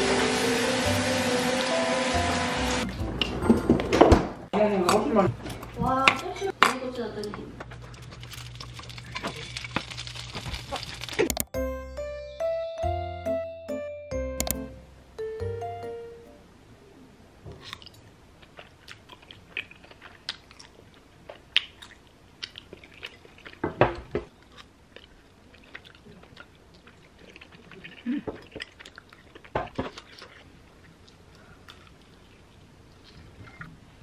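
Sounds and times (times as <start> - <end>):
person chewing: 7.8 - 11.5, 17.6 - 23.6, 24.3 - 33.7.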